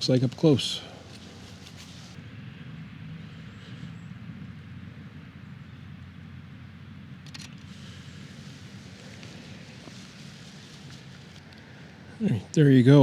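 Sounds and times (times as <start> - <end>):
low outdoor rumble: 0.0 - 13.0
sharp clicks: 7.2 - 7.7.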